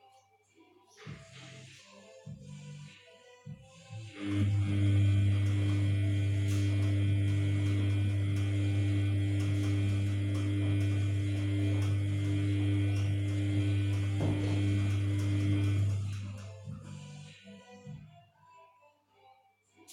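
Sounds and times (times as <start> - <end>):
washing machine humming: 4.0 - 17.1.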